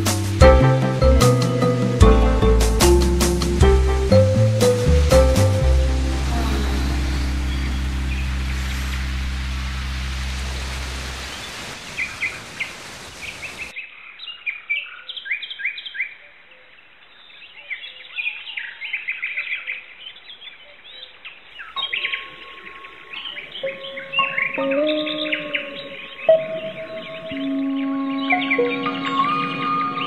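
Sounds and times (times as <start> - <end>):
held musical tones: 0.0 - 11.1, 22.1 - 30.0
low musical drone: 0.0 - 11.2, 22.0 - 30.0
small birds chirping and trilling: 6.2 - 30.0.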